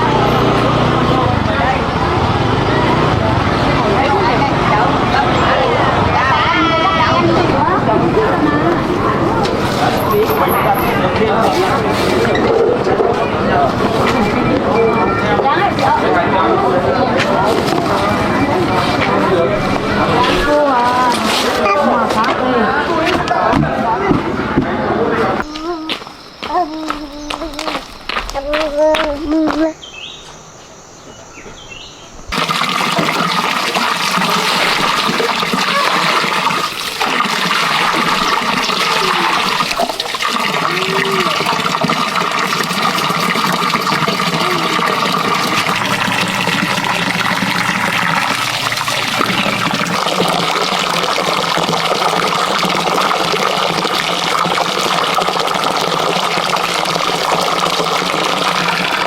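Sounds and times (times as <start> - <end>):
rushing water: 32.3 - 59.0.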